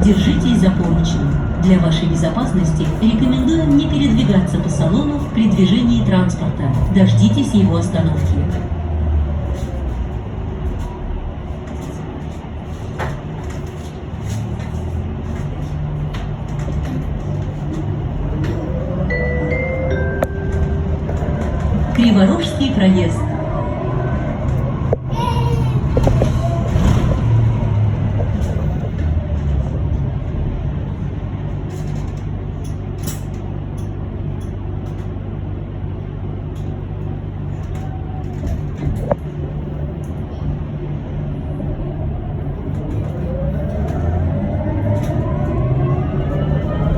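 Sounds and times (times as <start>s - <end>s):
bus low hum: 0.0s - 46.9s
road noise: 0.0s - 46.9s
bus body knocks and rattles: 9.4s - 18.8s, 25.8s - 35.4s, 36.4s - 40.6s.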